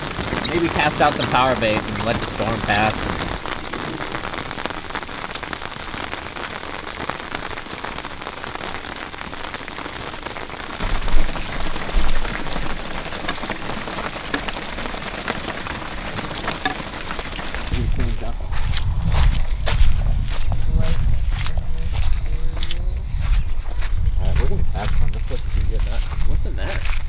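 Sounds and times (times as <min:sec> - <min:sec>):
heavy rain pouring: 0:00.0 - 0:18.4.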